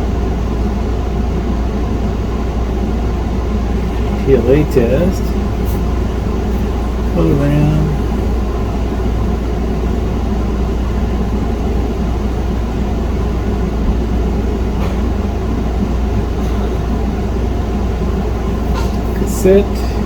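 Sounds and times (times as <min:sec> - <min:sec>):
room hum and hiss: 0:00.0 - 0:20.0.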